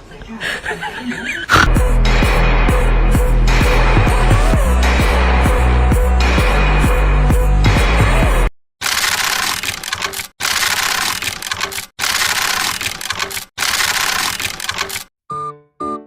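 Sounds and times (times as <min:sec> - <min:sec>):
harsh crackling crunching noise: 0:08.8 - 0:15.1.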